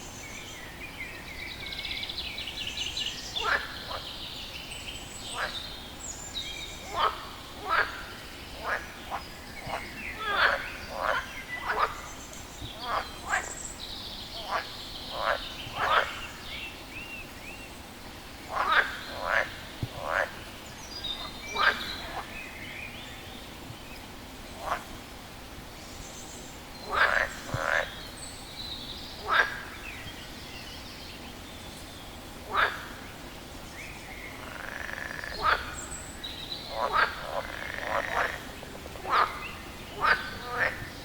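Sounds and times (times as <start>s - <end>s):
frog croaking: 6.9s - 12.1s, 18.5s - 20.4s, 21.2s - 22.3s, 26.9s - 28.0s, 29.2s - 29.7s, 32.5s - 33.0s, 34.4s - 35.9s, 36.6s - 41.0s.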